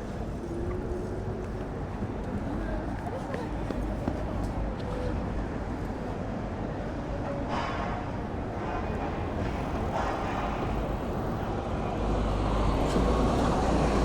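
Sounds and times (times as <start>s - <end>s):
passing vehicles: 8.4s - 14.0s.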